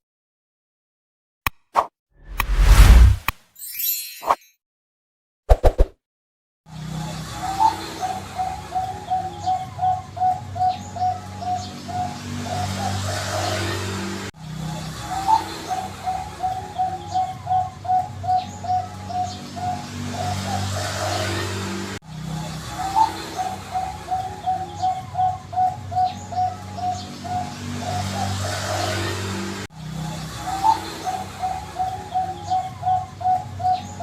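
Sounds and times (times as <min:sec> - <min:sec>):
dove cooing song: 0:07.6 - 0:12.1, 0:15.2 - 0:19.4, 0:22.8 - 0:27.1, 0:30.5 - 0:34.0.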